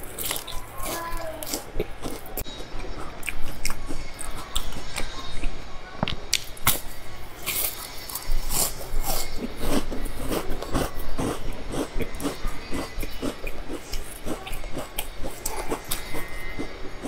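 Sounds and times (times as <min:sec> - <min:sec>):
crisp biting and crunching: 0:00.0 - 0:05.1, 0:06.4 - 0:16.8
moist chewing and lip smacks: 0:01.4 - 0:05.6.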